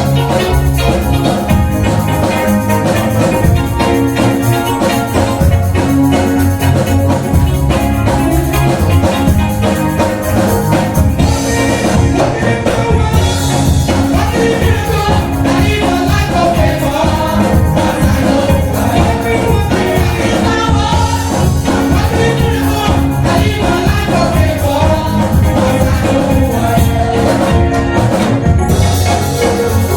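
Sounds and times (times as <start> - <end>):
gospel music drum beat: 0.0 - 29.9
voices singing: 9.9 - 28.5.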